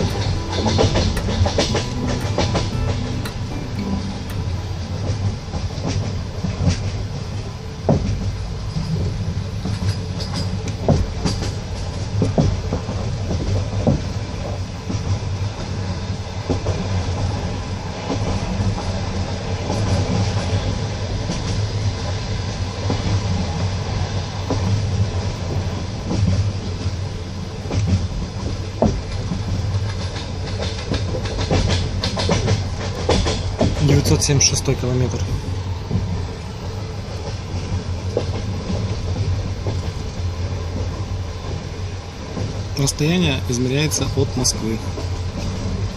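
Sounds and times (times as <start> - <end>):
wheels knocking over rail joints: 0.0 - 5.3
train carriage rumble: 0.0 - 45.9.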